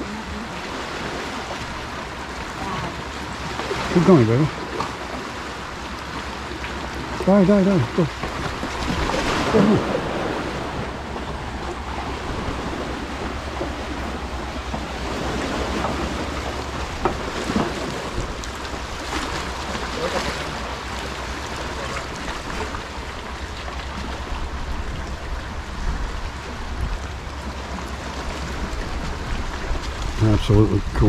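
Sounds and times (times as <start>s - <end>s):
sea waves on rocky shore: 0.0s - 31.0s
wind rumbling on microphone: 7.9s - 31.0s.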